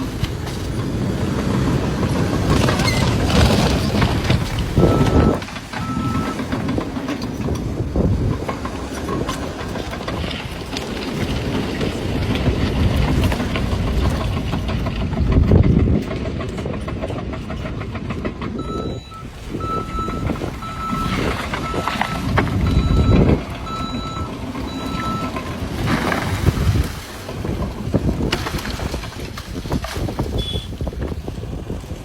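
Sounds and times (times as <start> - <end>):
rumbling engine and machinery: 0.0 - 32.0
truck backup alarm beeping: 4.6 - 6.8, 18.5 - 25.9, 30.4 - 30.7.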